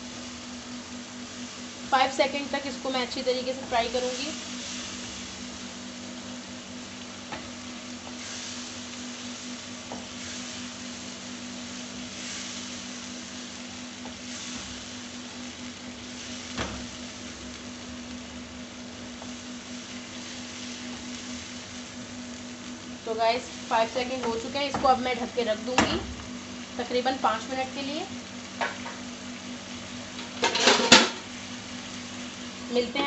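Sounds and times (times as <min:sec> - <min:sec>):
meat sizzling in a frying pan: 0:00.0 - 0:33.0
wooden spoon knocking on pan: 0:24.2 - 0:25.0.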